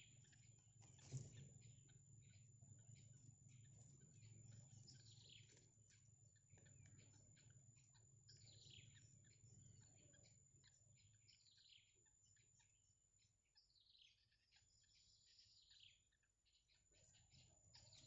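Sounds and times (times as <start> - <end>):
birds chirping rapidly: 0.0 - 18.0
steady low hum: 0.0 - 18.0.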